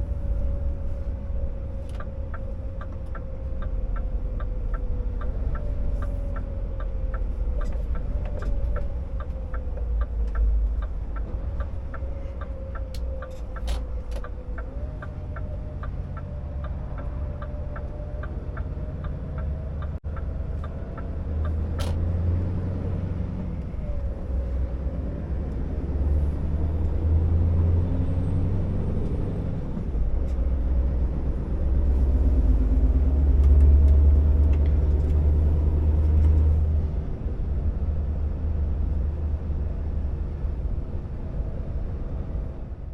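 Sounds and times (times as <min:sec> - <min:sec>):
diesel truck engine rumbling: 0:00.0 - 0:42.9
turn signal ticking: 0:00.2 - 0:22.3.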